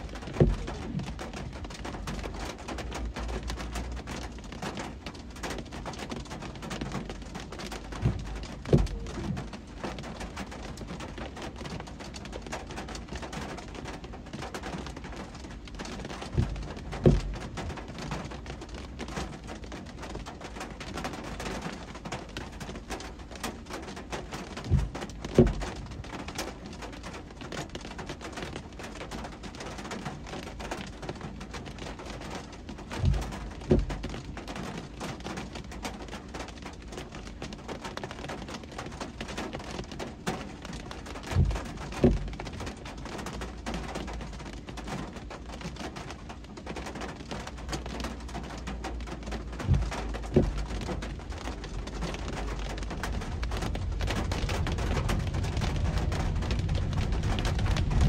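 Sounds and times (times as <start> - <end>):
dull low thumps: 7.9 - 9.5, 16.3 - 17.8, 24.7 - 25.9, 32.9 - 34.1, 41.3 - 42.6, 49.4 - 58.0
road noise: 47.9 - 58.0.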